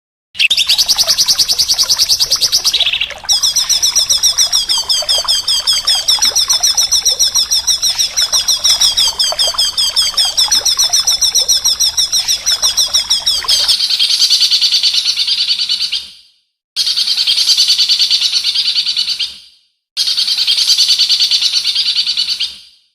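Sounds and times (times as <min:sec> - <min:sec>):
songbird trilling: 0:00.4 - 0:14.3.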